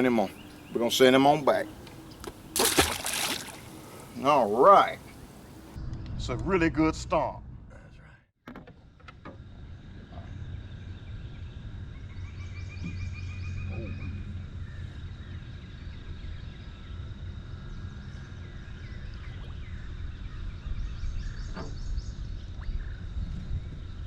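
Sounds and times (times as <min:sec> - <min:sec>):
wild birds calling: 0:00.0 - 0:05.8.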